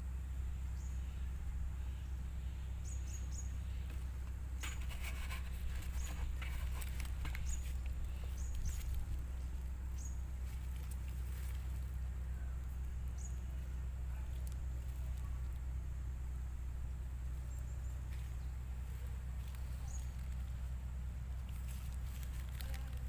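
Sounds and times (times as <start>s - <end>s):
small birds chirping: 0.0s - 23.0s
steady low hum: 0.0s - 23.0s
plastic container crackling: 4.6s - 9.2s, 21.4s - 23.0s.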